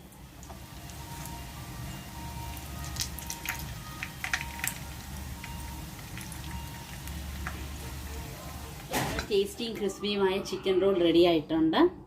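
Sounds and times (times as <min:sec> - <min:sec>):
food deep-frying in oil: 0:00.0 - 0:09.3
low steady hum: 0:00.0 - 0:10.6.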